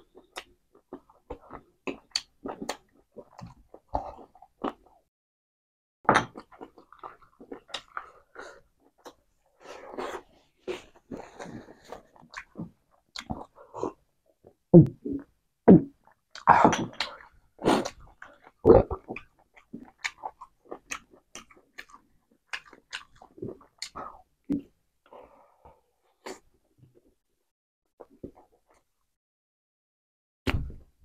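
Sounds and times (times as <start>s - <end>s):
person chewing food: 0.0s - 5.0s, 6.2s - 15.3s, 15.9s - 26.4s.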